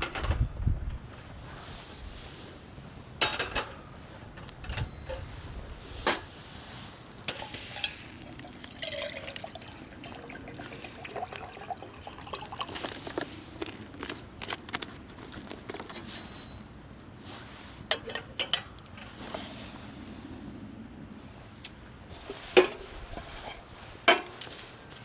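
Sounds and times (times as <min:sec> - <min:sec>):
liquid pouring and dripping: 0:07.9 - 0:13.3.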